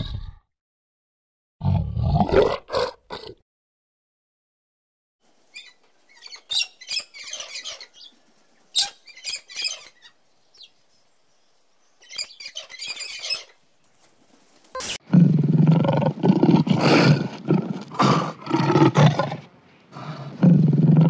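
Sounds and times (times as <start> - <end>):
macaw squawking: 5.5 - 8.1, 8.7 - 10.7, 12.0 - 13.6.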